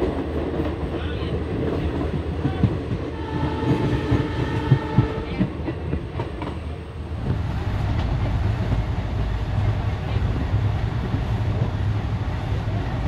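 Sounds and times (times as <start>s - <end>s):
train wheels clattering: 0.0s - 11.8s
train rumbling on track: 0.0s - 13.0s
train horn: 3.0s - 5.6s.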